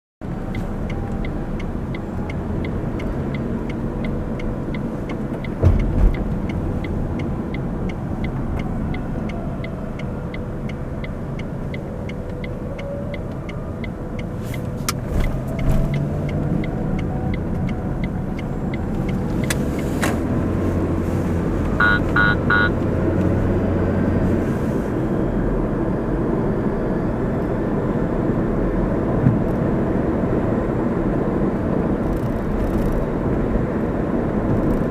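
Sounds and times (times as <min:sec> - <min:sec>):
car engine and road noise: 0:00.2 - 0:34.9
short beeps: 0:21.8 - 0:22.8.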